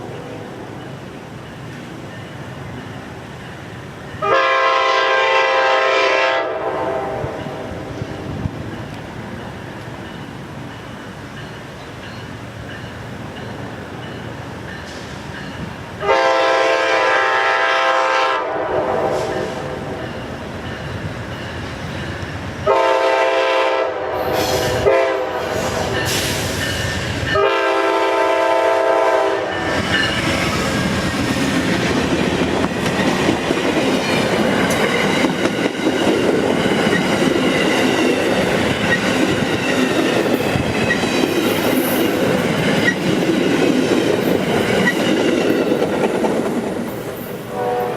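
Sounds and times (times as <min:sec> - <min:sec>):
train rumbling past: 0:00.0 - 0:47.9
locomotive horn blasts: 0:04.2 - 0:07.6, 0:16.0 - 0:20.0, 0:22.6 - 0:26.0, 0:27.3 - 0:29.8, 0:47.5 - 0:47.9.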